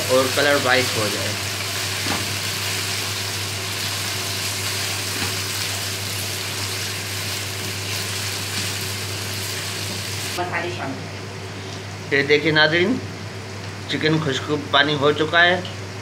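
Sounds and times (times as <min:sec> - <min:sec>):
chicken sizzling in hot oil: 0:00.0 - 0:10.4.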